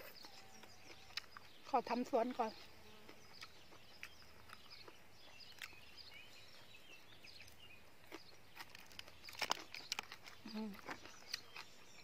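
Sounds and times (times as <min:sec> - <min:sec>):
faint birds twittering: 0:00.0 - 0:12.0.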